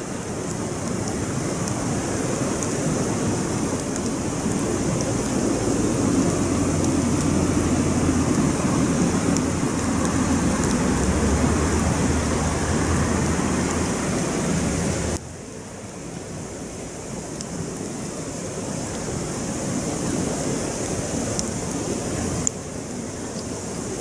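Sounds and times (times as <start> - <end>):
campfire hissing: 0.0 - 24.0
campfire pops: 3.5 - 13.9.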